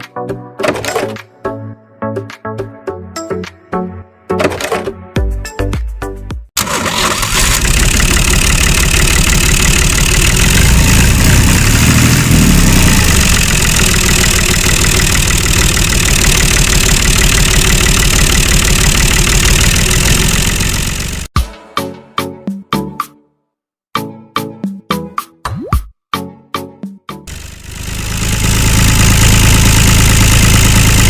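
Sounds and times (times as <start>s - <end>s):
engine running: 6.6s - 21.3s, 27.3s - 31.0s.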